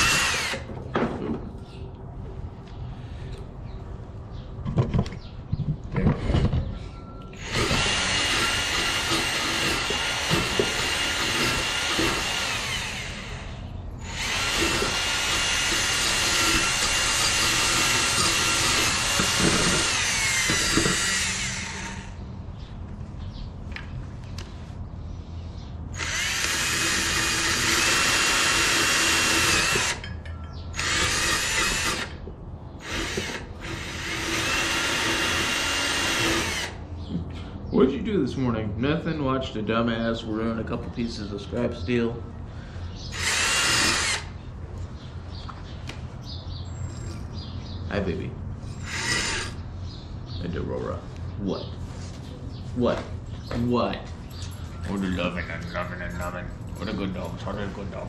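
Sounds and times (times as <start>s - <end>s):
drill spinning wire wheel on steel: 0.0s - 0.7s, 7.4s - 22.2s, 25.9s - 30.1s, 30.7s - 32.2s, 32.8s - 36.8s, 43.1s - 44.3s, 48.7s - 49.6s.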